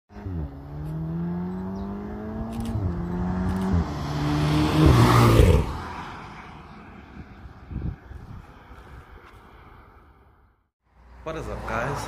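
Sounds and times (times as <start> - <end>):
car engine accelerating hard: 0.1 - 5.8.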